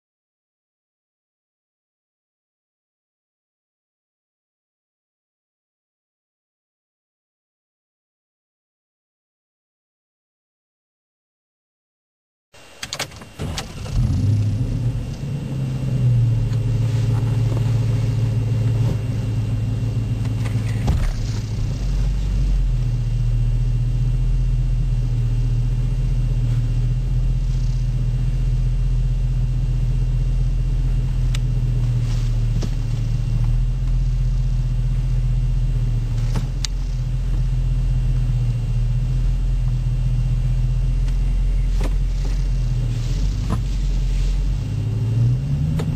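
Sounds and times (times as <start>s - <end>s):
car engine starting and idling: 12.6s - 45.9s.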